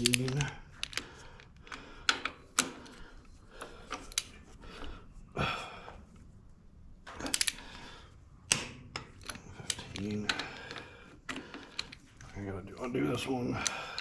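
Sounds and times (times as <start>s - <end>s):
wrench clicking on bolts: 0.0s - 3.0s, 7.2s - 7.7s, 8.5s - 14.0s.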